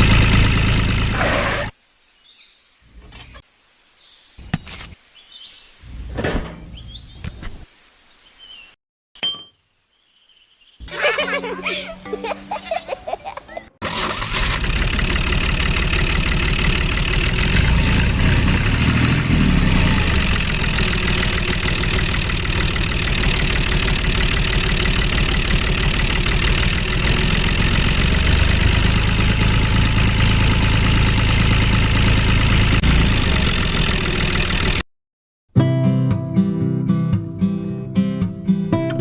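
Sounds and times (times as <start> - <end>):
small tractor motor running: 0.0 - 1.7, 13.8 - 34.8.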